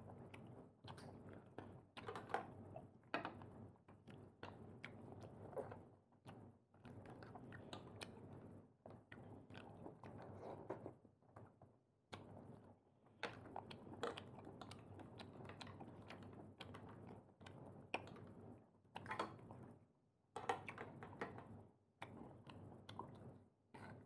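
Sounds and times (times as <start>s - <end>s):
person chewing food: 3.3s - 10.9s, 13.2s - 19.6s.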